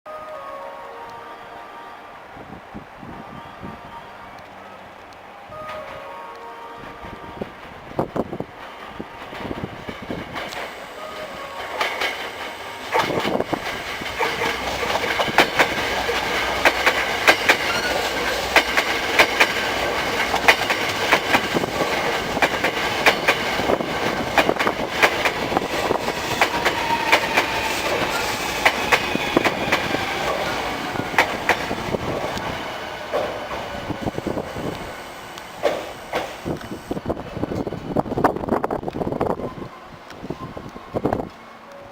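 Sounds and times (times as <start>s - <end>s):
train wheels clacking over rail joints: 11.6s - 34.1s, 35.4s - 36.8s.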